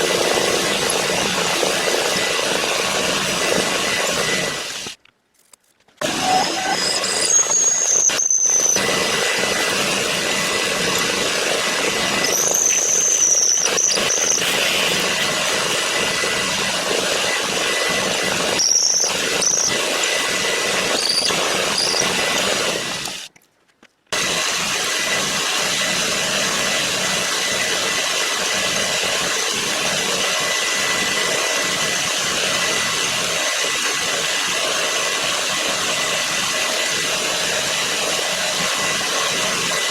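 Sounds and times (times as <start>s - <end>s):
power tool cutting metal: 0.0s - 5.0s, 6.0s - 23.3s, 24.1s - 39.9s
high-pitched squeals from cut: 6.0s - 16.2s, 17.2s - 23.2s.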